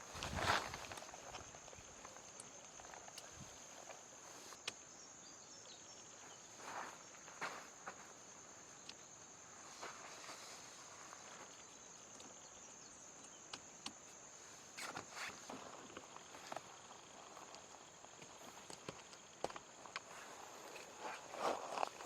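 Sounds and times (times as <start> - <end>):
soft rustles: 0.0 - 4.7, 6.2 - 8.8, 9.6 - 12.4, 14.4 - 22.0
light footsteps on ground: 0.0 - 4.8, 6.2 - 9.0.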